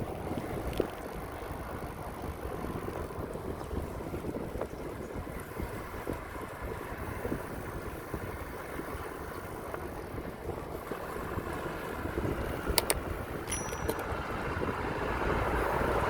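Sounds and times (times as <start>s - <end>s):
bicycle rolling rumble: 0.0s - 16.0s
wind buffeting microphone: 0.0s - 16.0s.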